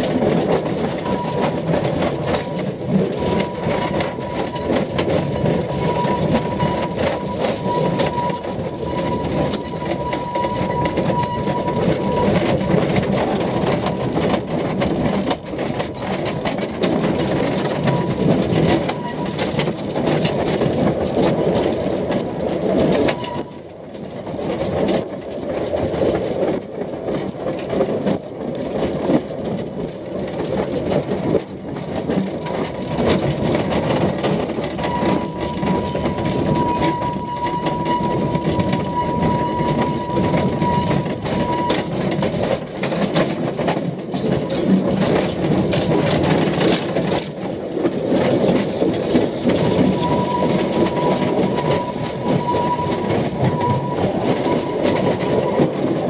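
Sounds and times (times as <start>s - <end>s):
wheels rumbling and rattling on rails: 0.0s - 56.0s
high-pitched squeal: 49.9s - 55.4s.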